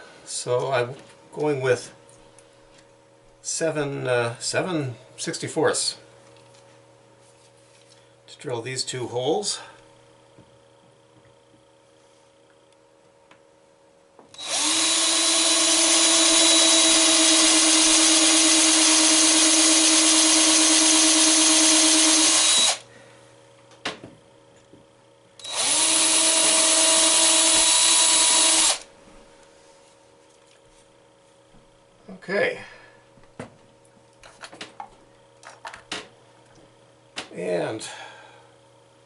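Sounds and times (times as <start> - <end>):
power drill drilling into wood: 14.4 - 22.8, 25.4 - 28.9.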